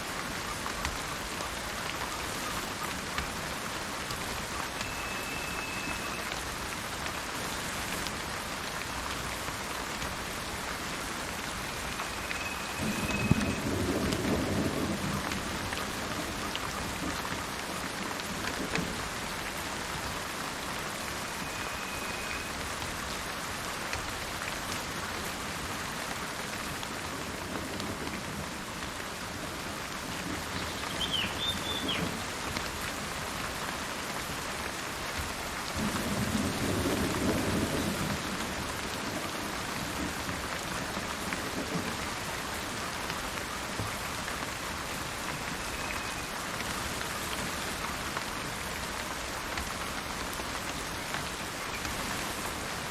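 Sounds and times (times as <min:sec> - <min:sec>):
steady rain: 0:00.0 - 0:52.9
thunder rumbling: 0:12.6 - 0:16.2
bird chirp: 0:30.6 - 0:32.0.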